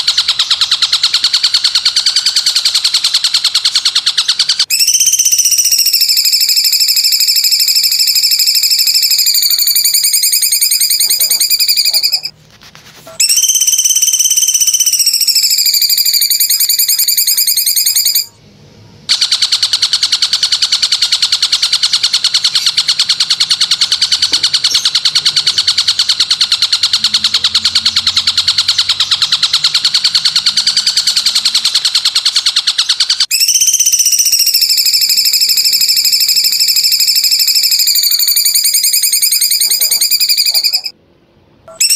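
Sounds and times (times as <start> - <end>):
insect hissy rattling trill: 4.7 - 12.3, 13.2 - 18.3.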